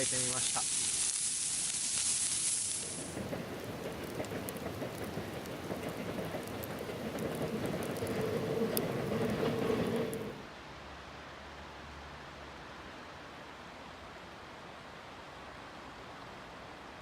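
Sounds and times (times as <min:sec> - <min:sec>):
food sizzling on griddle: 0:00.0 - 0:05.7, 0:06.4 - 0:08.1
frying pops and spits: 0:00.0 - 0:08.2.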